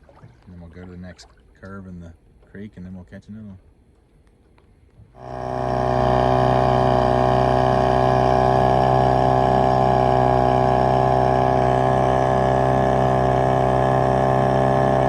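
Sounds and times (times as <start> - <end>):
boat motor humming: 5.0 - 15.0.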